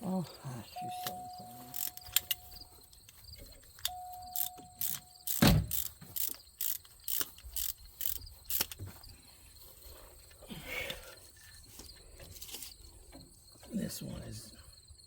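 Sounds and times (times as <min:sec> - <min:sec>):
sharp metallic clicks: 0:00.8 - 0:08.9.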